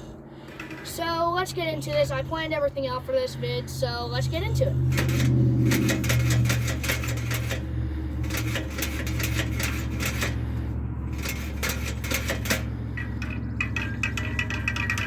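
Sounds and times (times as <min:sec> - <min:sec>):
steady low hum: 0:00.0 - 0:15.0
bicycle mechanism clicking: 0:04.9 - 0:15.0.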